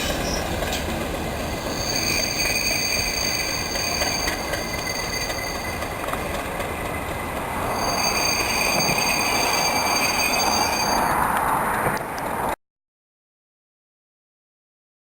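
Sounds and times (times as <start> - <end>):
train rolling on rails: 0.0 - 12.6
wheel squeal: 1.5 - 6.2, 7.6 - 11.2.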